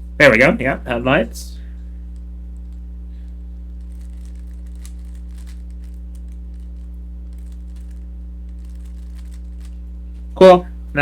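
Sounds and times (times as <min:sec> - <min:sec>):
low electrical hum: 0:00.0 - 0:11.0
puzzle cube clicking as turned: 0:03.8 - 0:08.0, 0:08.6 - 0:09.8.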